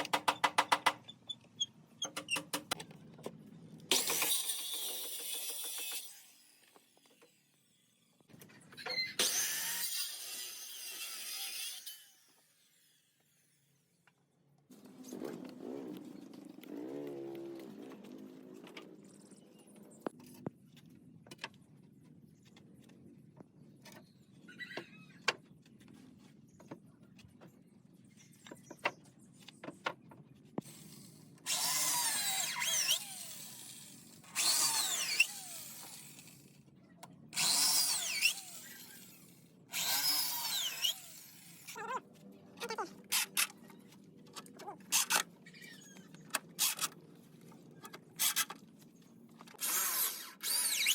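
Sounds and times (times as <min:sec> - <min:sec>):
power tool cutting wood: 0:03.9 - 0:07.4, 0:09.2 - 0:13.4, 0:30.6 - 0:36.5, 0:37.4 - 0:41.9, 0:49.5 - 0:50.9.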